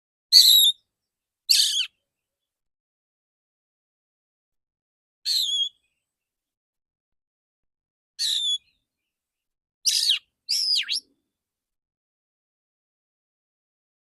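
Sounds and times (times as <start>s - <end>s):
bird whistled song phrases: 0.4s - 0.8s, 1.5s - 1.9s, 5.3s - 5.9s, 8.2s - 8.8s, 9.9s - 11.1s.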